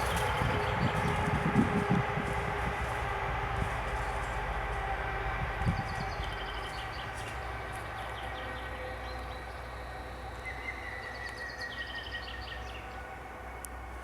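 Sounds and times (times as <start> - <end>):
songbirds singing: 0.0 - 1.8, 5.5 - 13.7
low rumble: 0.0 - 10.4.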